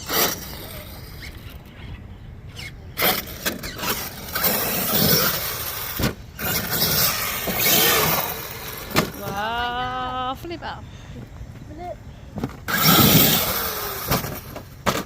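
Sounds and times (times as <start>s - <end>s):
electric motor whining: 0.0s - 9.5s, 12.6s - 15.0s
tyres on ground: 0.0s - 15.0s.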